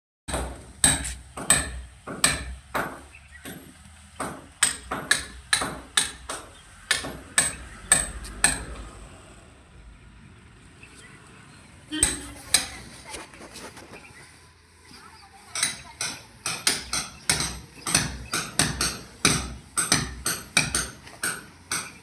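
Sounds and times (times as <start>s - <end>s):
hammer striking: 0.3s - 8.8s, 12.0s - 12.8s, 15.5s - 22.0s.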